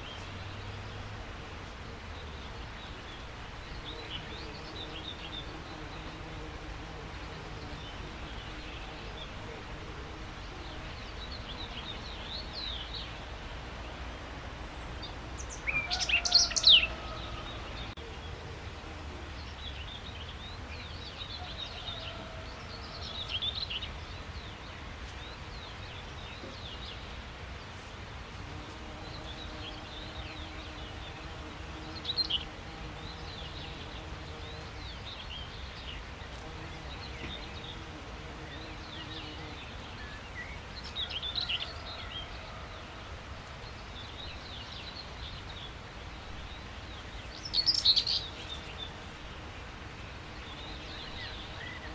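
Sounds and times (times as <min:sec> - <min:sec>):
birds chirping and trilling: 0:14.6 - 0:18.5, 0:28.9 - 0:49.0, 0:50.0 - 0:51.9.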